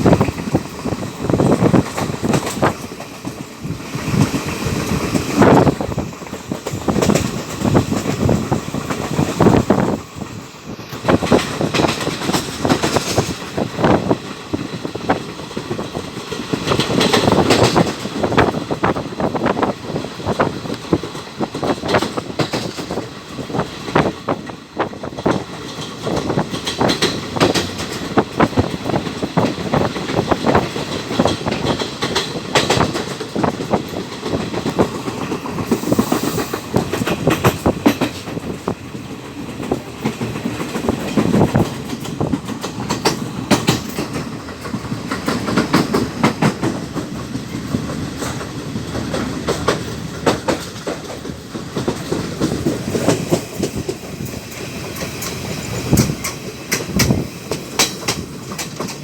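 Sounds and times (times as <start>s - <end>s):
train wheels knocking on rail joints: 0.0s - 59.0s
clatter of clicks and rattles: 39.5s - 53.8s.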